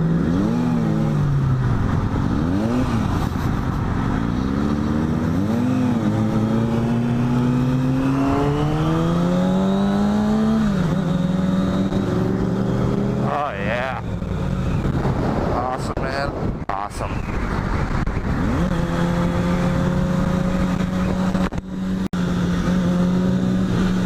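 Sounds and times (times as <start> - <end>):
engines revving: 0.0 - 15.9.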